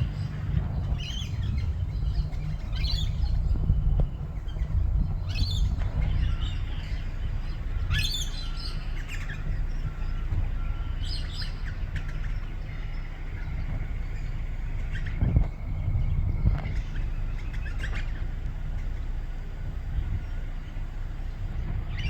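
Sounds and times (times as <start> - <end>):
steady low rumble: 0.0 - 22.0
parrots chirping: 0.1 - 13.5.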